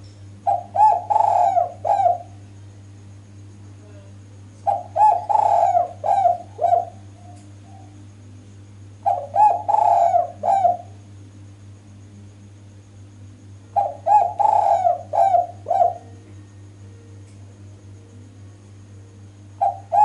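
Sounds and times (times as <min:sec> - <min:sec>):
steady low hum: 0:00.0 - 0:20.0
dove cooing: 0:00.4 - 0:02.4, 0:04.6 - 0:08.0, 0:09.0 - 0:11.0, 0:13.7 - 0:16.6, 0:19.5 - 0:20.0.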